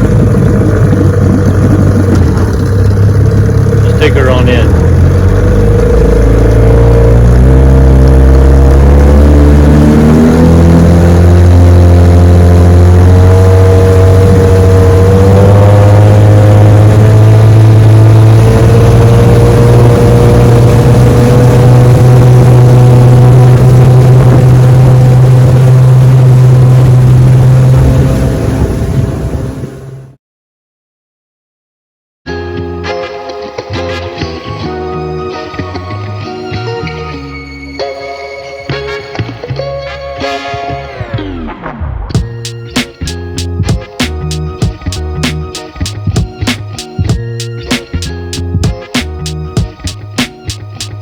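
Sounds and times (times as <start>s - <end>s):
outboard motor running: 0.0s - 30.1s, 42.2s - 51.0s.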